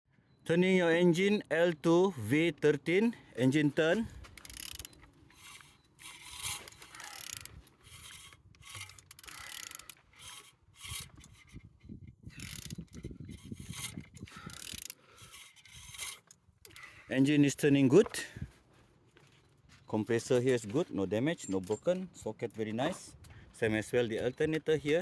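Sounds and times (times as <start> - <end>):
engine turned over by hand: 4.2 - 11.5.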